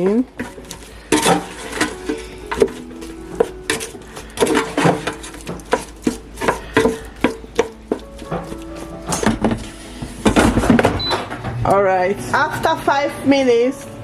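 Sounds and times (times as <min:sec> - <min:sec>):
utensil scraping in a pan: 0:00.4 - 0:10.0.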